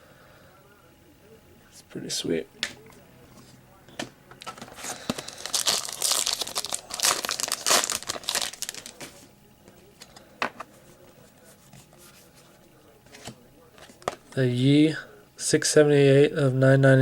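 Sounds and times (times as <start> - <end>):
card pack wrapper crinkling and tearing: 4.6 - 9.1.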